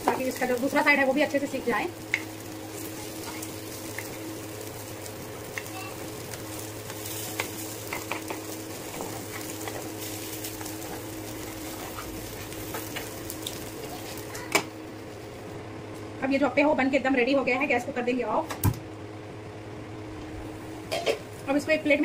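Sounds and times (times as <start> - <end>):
food sizzling in oil: 0.0 - 15.5.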